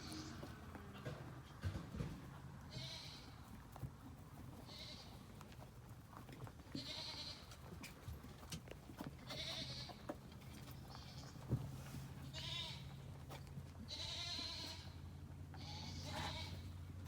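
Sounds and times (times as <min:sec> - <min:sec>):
bleat-like animal call: 0:00.0 - 0:00.6, 0:02.7 - 0:03.4, 0:06.8 - 0:07.5, 0:12.2 - 0:13.0, 0:13.9 - 0:16.7
rabbits crunching food: 0:00.0 - 0:17.0.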